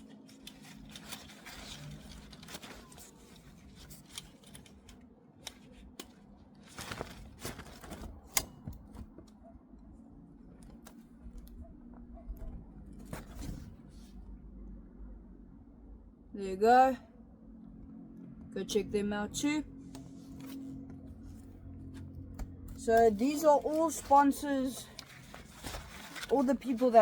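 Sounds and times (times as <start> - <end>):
packaging rustling and tearing: 0.1 - 9.2, 22.9 - 27.0.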